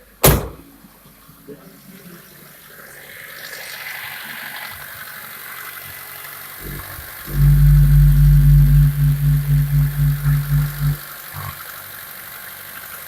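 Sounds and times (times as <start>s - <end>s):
engine starting and running: 3.6s - 12.8s.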